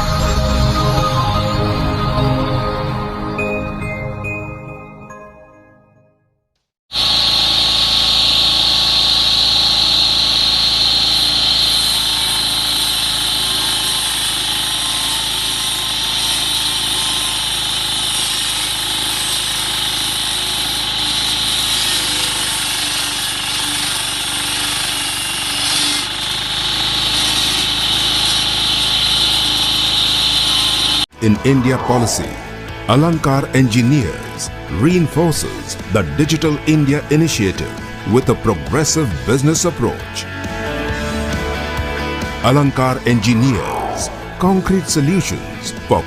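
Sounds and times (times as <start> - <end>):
curb cutting machine running: 6.9 - 31.1.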